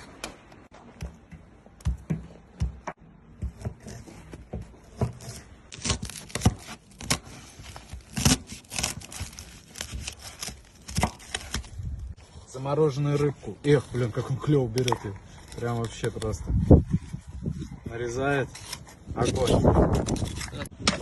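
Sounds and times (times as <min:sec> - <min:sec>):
knife cutting frozen fish: 0:05.0 - 0:11.8.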